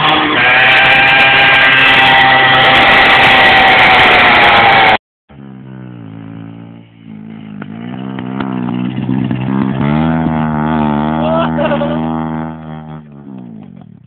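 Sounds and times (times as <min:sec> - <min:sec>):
motorcycle engine running: 0:05.3 - 0:14.0.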